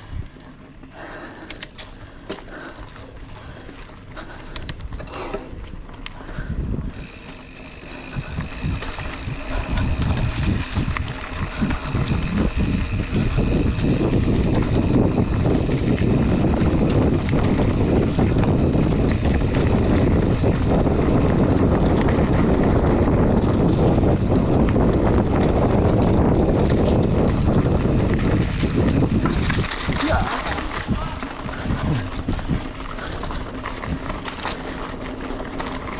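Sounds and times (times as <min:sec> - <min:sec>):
tyres rumbling over trail: 0:00.0 - 0:35.9
wind rushing over microphone: 0:06.2 - 0:34.3.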